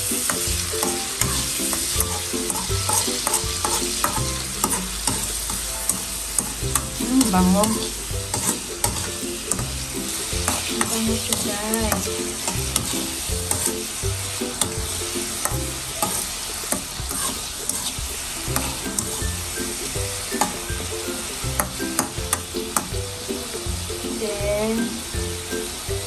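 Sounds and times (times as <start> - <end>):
metal spatula scraping wok: 0.0 - 23.6
pork sizzling in hot oil: 0.0 - 26.0.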